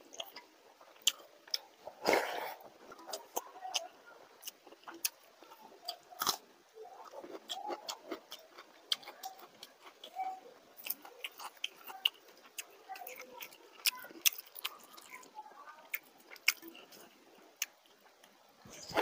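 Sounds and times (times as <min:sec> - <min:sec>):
chewing with wet lip smacks: 0:07.0 - 0:15.3.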